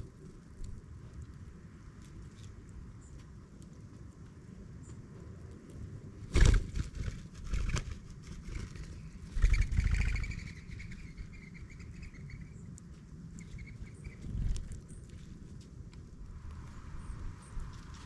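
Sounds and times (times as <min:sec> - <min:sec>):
low rumble of wind: 0:00.0 - 0:18.0
small birds chirping: 0:08.4 - 0:15.5.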